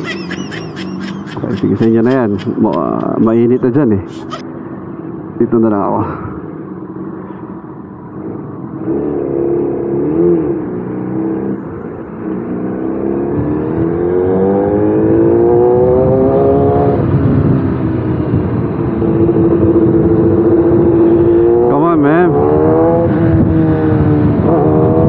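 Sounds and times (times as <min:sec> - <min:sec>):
motorcycle engine accelerating: 0:08.0 - 0:25.0.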